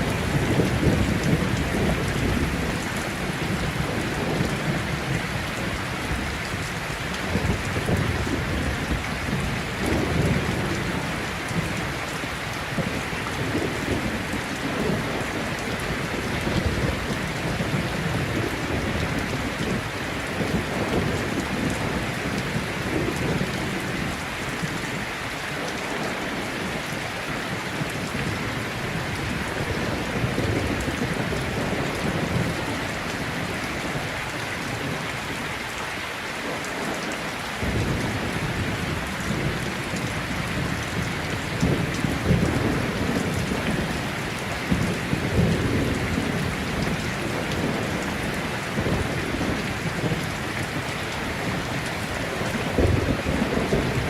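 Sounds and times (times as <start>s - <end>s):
heavy rain falling: 0.0s - 54.0s
rolling thunder: 44.7s - 54.0s.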